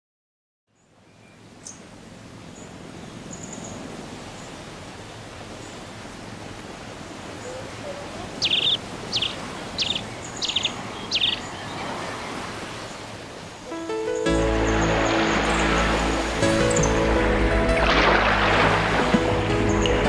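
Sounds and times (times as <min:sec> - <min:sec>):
bird calls with buzzy trill: 0:07.4 - 0:11.8
faint high chirps: 0:08.4 - 0:11.5.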